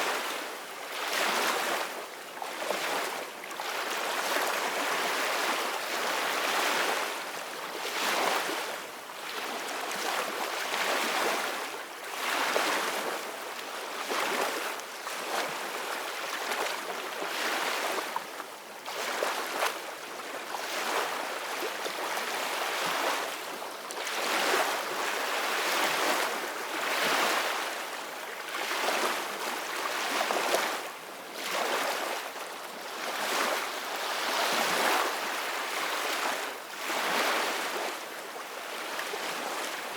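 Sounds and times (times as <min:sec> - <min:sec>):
ocean waves breaking on shore: 0:32.9 - 0:39.9.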